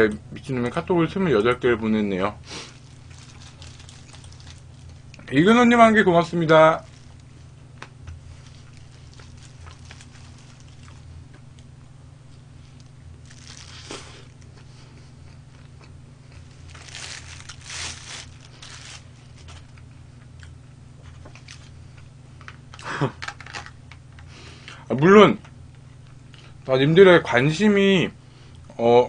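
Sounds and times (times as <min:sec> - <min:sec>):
low hum: 0:02.3 - 0:22.9
person chewing crunchy food: 0:02.5 - 0:05.3, 0:06.8 - 0:11.6, 0:12.8 - 0:20.6.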